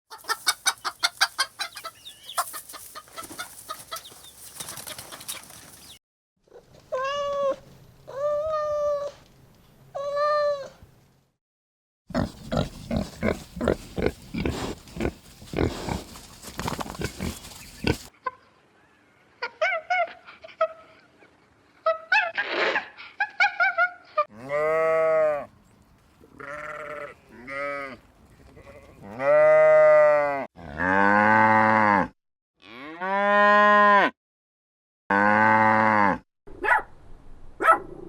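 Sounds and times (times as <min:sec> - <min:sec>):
hens clucking: 0:00.1 - 0:06.0, 0:12.2 - 0:18.5.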